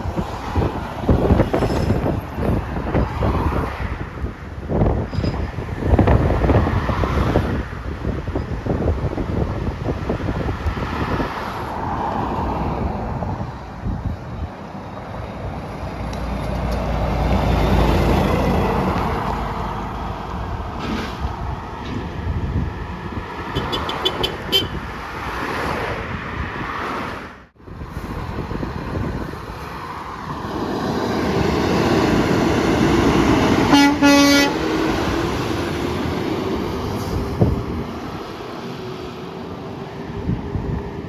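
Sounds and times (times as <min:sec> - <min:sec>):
heavy truck passing: 0:00.0 - 0:41.0
truck air horn blast: 0:23.6 - 0:24.8, 0:33.6 - 0:35.0.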